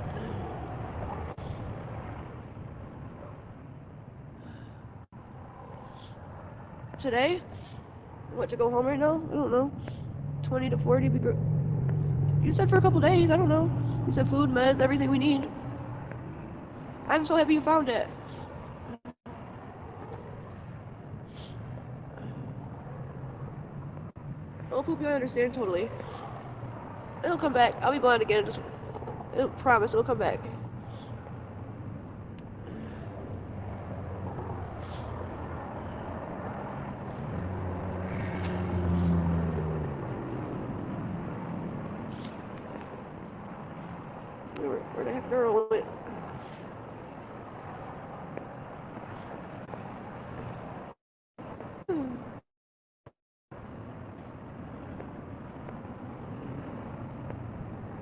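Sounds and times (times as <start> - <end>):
hum of passing traffic: 0.0 - 52.4, 53.5 - 58.0
vehicle engine passing close: 9.0 - 17.0, 30.5 - 44.4.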